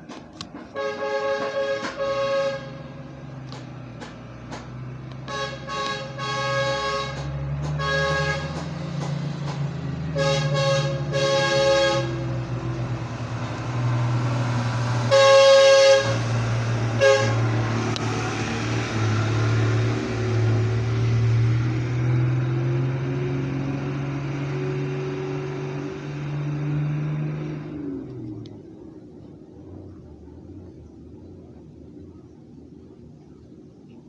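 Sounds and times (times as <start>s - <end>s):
truck engine passing: 0.0s - 34.0s
truck horn blasts: 0.7s - 3.4s, 5.1s - 19.2s.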